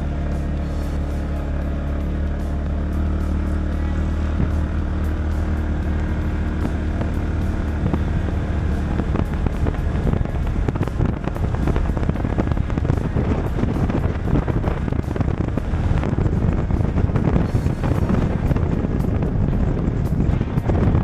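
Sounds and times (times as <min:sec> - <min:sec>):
engine running: 0:00.0 - 0:21.0
wind buffeting microphone: 0:04.2 - 0:21.0.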